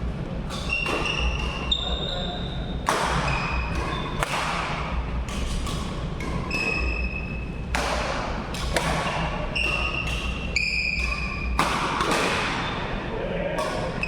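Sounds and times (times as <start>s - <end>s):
racket hitting shuttlecock: 0.4s - 1.7s, 2.8s - 13.0s, 13.6s - 14.0s
shoes squeaking on floor: 0.5s - 4.2s, 5.4s - 7.5s, 9.5s - 11.6s.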